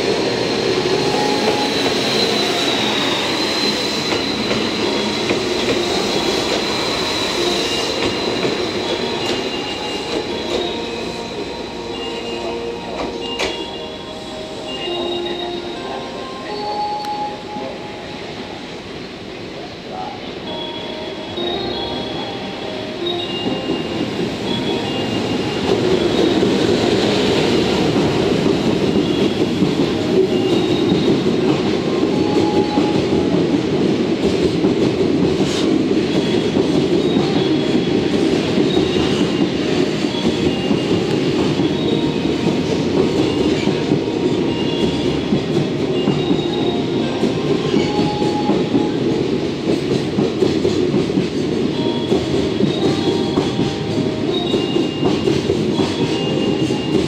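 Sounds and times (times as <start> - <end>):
train wheels rolling on rail: 0.0 - 57.0
high wheel squeals: 0.5 - 17.7.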